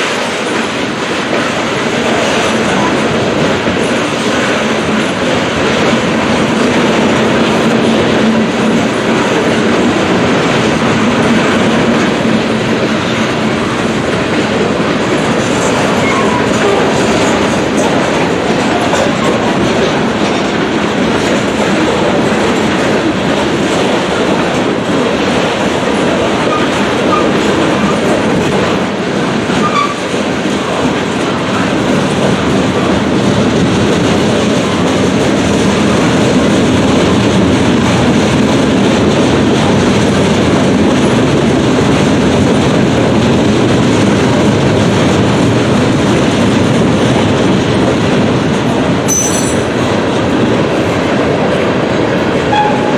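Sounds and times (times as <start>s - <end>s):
freight train rumbling past: 0.0s - 52.9s
steel wheels clattering over rail joints: 0.0s - 52.9s.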